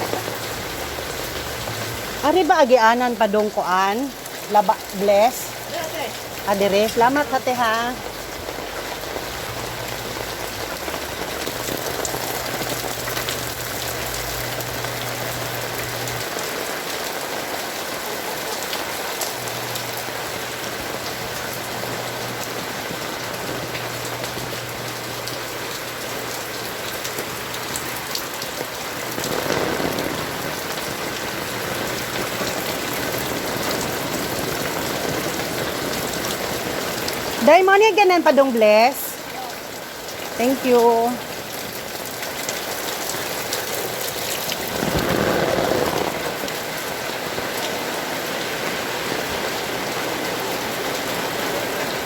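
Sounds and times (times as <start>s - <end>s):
heavy rain falling: 0.0s - 52.0s
rush of water: 0.0s - 52.0s
sharp raindrop hits: 0.0s - 52.0s.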